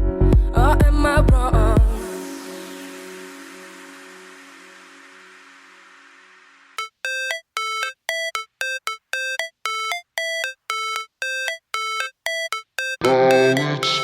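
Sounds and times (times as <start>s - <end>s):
synthetic electronic beeps: 6.8s - 14.0s.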